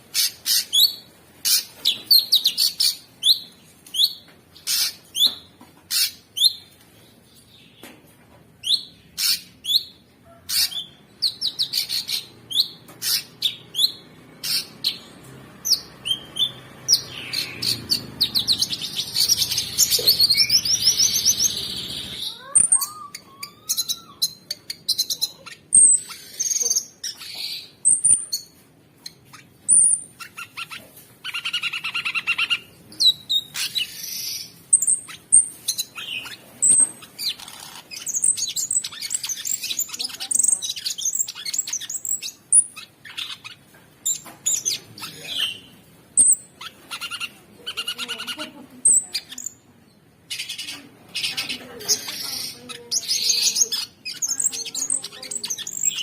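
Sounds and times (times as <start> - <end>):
songbird singing high chirps: 50.3 - 56.0.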